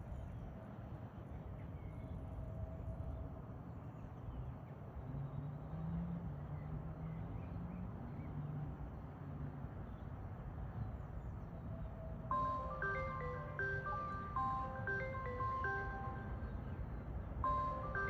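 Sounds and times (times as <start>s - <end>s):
bell-like music notes: 12.3s - 16.8s, 17.4s - 18.0s.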